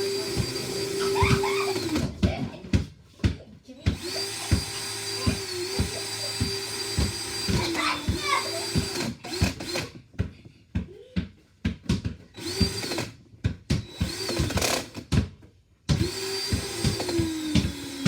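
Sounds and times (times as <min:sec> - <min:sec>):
electric drill whirring: 0:00.0 - 0:02.1, 0:04.0 - 0:09.9, 0:12.4 - 0:13.2, 0:13.8 - 0:15.1, 0:15.9 - 0:18.0.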